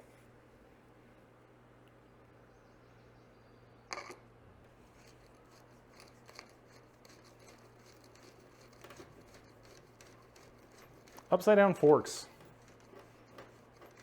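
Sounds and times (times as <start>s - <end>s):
faint clicks and scratches: 3.9s - 14.0s.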